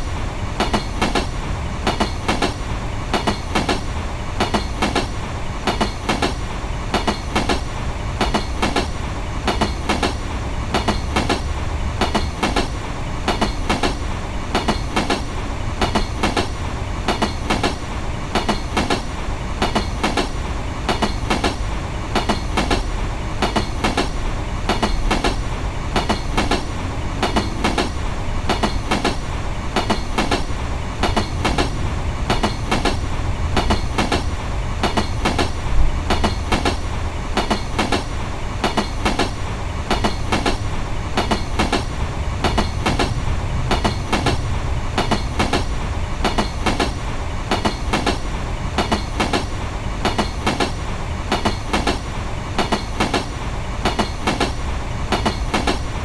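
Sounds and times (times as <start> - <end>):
low train rumble: 0.0 - 56.0
train wheels clacking on rail joints: 0.0 - 56.0.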